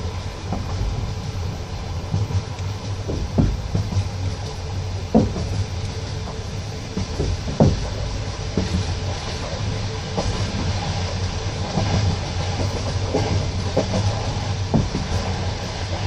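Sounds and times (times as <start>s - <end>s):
train carriage rumbling: 0.0s - 16.0s
wheels knocking over rail joints: 2.0s - 9.1s.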